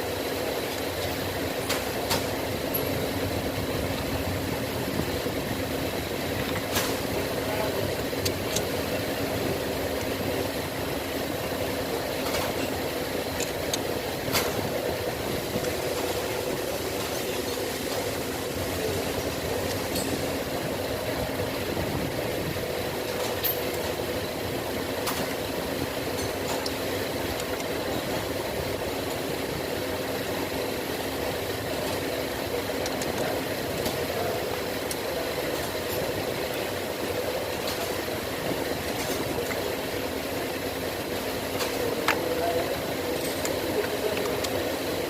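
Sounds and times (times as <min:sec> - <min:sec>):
engine idling: 0:00.0 - 0:45.0
mechanical hum with held tone: 0:00.0 - 0:45.0.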